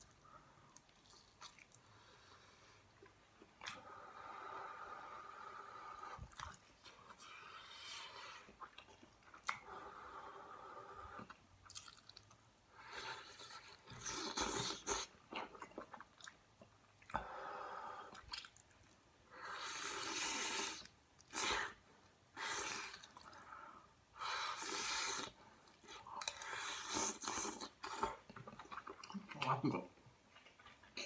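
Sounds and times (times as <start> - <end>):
person chewing food: 6.1 - 9.7, 11.1 - 12.4, 18.1 - 19.0, 24.4 - 29.5, 30.2 - 31.0.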